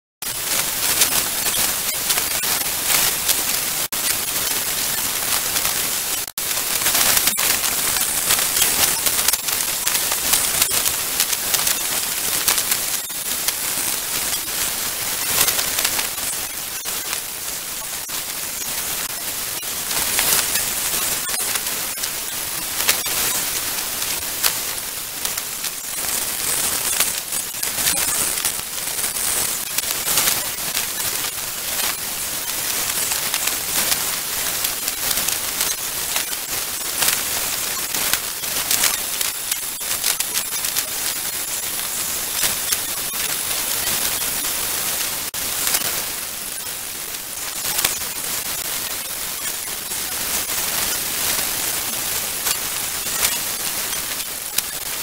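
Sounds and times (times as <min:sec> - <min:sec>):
heavy rain pelting surfaces: 0:00.3 - 0:55.0.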